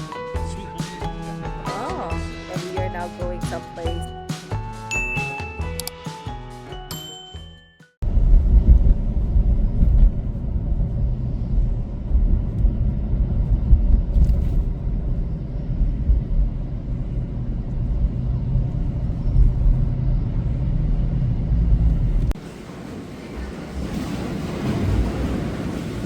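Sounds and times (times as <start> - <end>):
car road and engine noise: 8.0 - 22.4.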